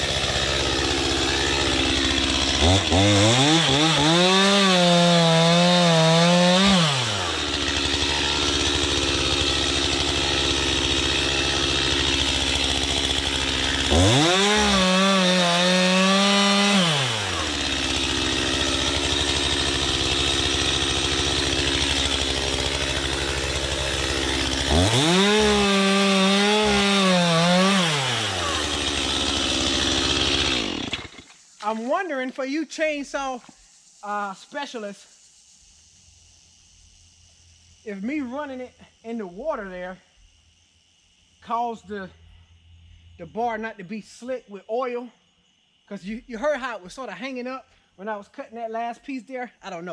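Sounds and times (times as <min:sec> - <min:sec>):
chainsaw revving and cutting: 0:00.0 - 0:31.8
chainsaw idling: 0:00.0 - 0:32.1.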